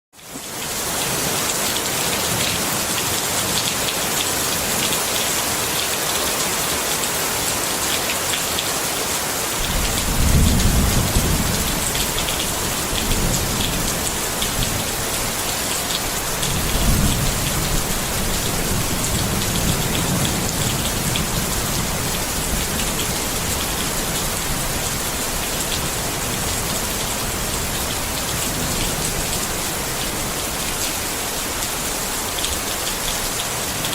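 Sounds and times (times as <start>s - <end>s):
rain falling on a tent: 0.1s - 33.9s
thunder rumbling: 9.6s - 15.4s, 16.2s - 24.6s.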